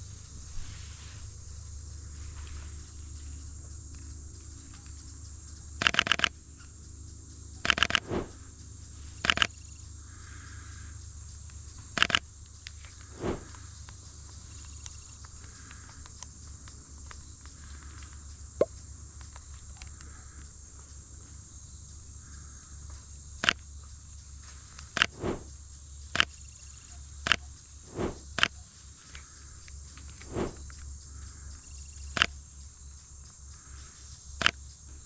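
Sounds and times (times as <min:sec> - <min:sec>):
high insect hum: 0:00.0 - 0:18.6, 0:23.8 - 0:27.0, 0:27.6 - 0:35.0.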